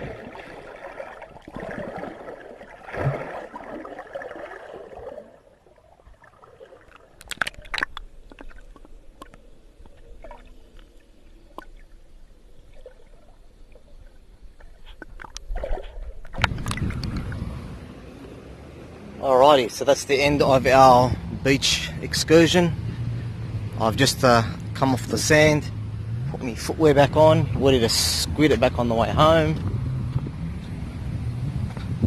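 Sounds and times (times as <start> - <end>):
sea water sloshing and gurgling: 0.0 - 18.2.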